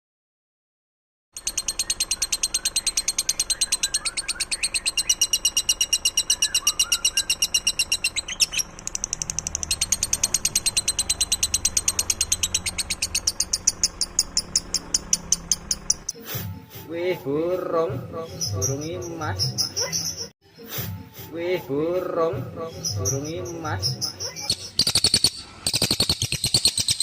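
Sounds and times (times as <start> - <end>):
songbird trilling: 1.4 - 16.2, 22.6 - 27.0.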